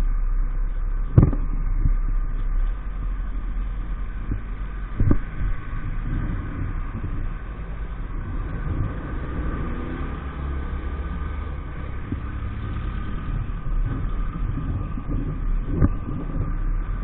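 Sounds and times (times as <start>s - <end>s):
low microphone rumble: 0.0s - 17.0s.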